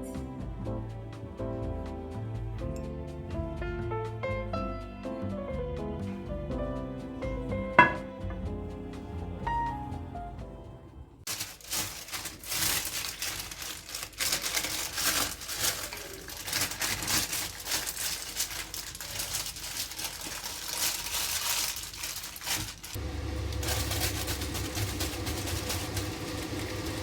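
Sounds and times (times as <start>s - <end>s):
rustling and crinkling: 6.0s - 10.2s, 11.2s - 27.0s.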